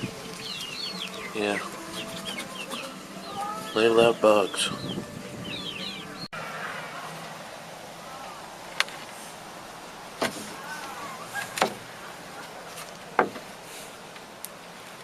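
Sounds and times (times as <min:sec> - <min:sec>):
sharp knocks: 0:13.2 - 0:13.4.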